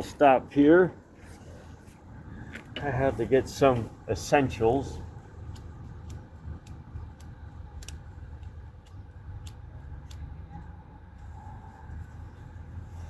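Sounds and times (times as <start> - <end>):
steady low rumble: 0.0 - 13.0
regular ticking: 3.4 - 12.8.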